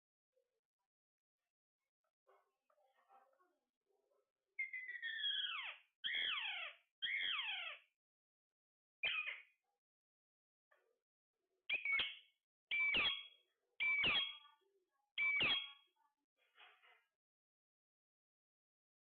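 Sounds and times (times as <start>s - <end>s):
parrot calling: 4.6s - 7.9s, 9.0s - 9.4s, 11.7s - 14.3s.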